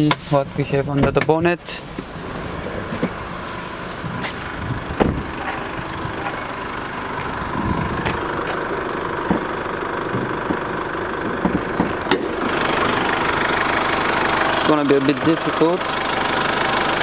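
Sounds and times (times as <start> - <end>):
diesel engine idling: 0.0 - 17.0
sharp clicks and knocks: 10.1 - 12.3.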